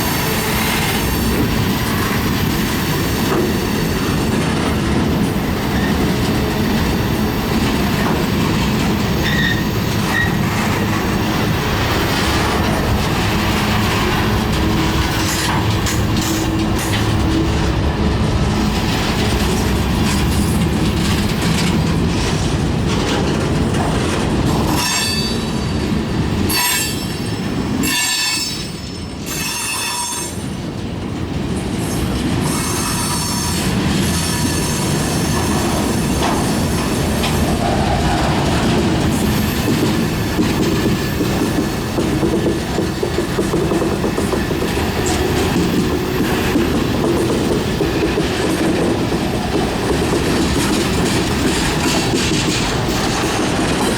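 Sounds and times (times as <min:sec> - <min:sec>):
train wheels squealing: 0:00.0 - 0:04.7, 0:09.0 - 0:11.2, 0:24.6 - 0:30.6, 0:31.8 - 0:41.9
freight train cars rolling: 0:00.0 - 0:53.9
wheels clacking over rail joints: 0:00.0 - 0:53.9.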